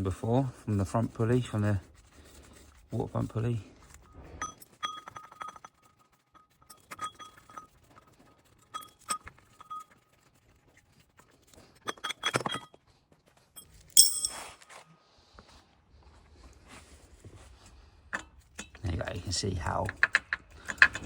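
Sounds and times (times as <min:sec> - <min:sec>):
light metal clinks: 0:13.6 - 0:14.6
sharp ringing metal clink: 0:14.0 - 0:14.6.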